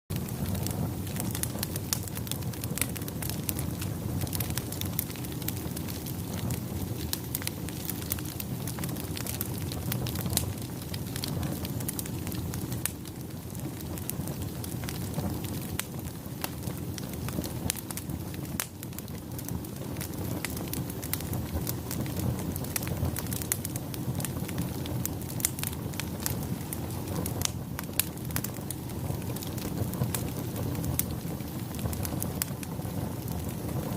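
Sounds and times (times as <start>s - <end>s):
bonfire flames rushing: 0.1s - 33.9s
fire crackling and popping: 0.1s - 33.9s.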